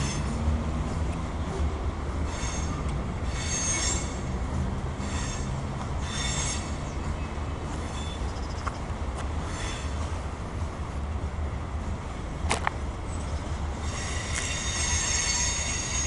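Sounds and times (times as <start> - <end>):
train wheels squealing: 0.0 - 0.4, 2.2 - 4.4, 5.0 - 7.2, 7.8 - 8.6, 9.4 - 10.1, 13.1 - 16.0
freight train rumbling: 0.0 - 16.0.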